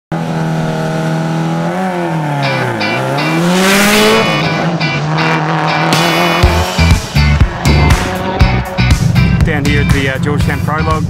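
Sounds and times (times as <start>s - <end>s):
rally car engine: 0.1s - 11.0s
music with steady beat: 2.8s - 11.0s.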